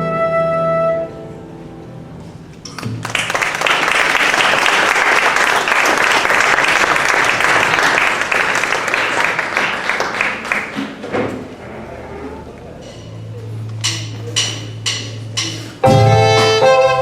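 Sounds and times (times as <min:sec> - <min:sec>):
audience clapping: 0:02.7 - 0:11.1.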